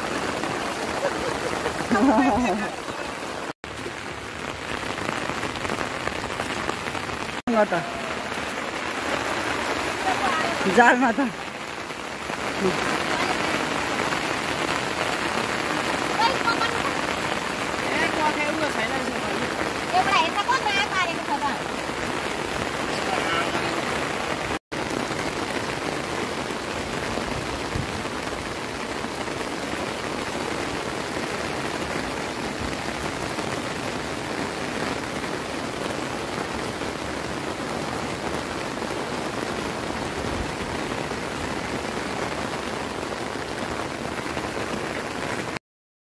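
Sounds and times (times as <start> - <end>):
fast-flowing river rushing: 0.0 - 3.6, 6.2 - 24.6
rain falling: 0.0 - 45.6.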